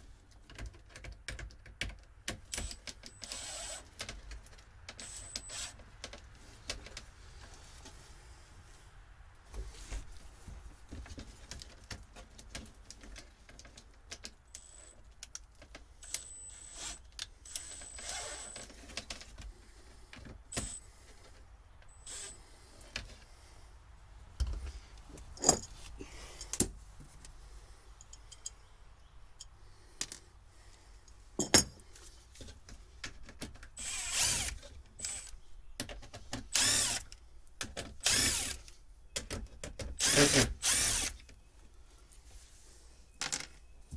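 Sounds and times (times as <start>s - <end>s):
power drill running: 3.2s - 3.8s, 5.0s - 5.7s, 16.0s - 18.6s, 22.0s - 22.4s, 33.8s - 35.3s, 36.5s - 37.1s, 38.0s - 38.6s, 40.0s - 41.2s
tools and parts clattering: 25.2s - 26.7s, 31.4s - 33.6s.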